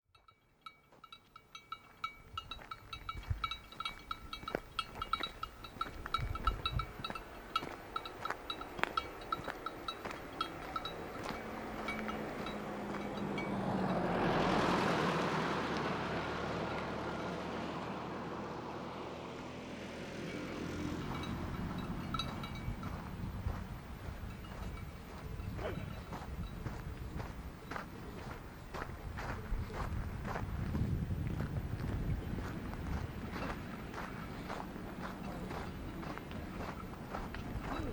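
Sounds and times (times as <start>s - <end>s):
small metal bells tinkling: 0.1s - 14.2s, 20.7s - 28.2s
passing vehicle engine and tyres: 0.6s - 37.9s.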